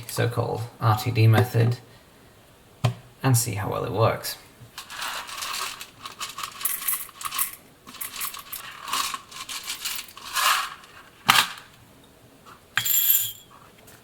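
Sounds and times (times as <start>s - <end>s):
small hard objects rattling: 4.8s - 11.8s.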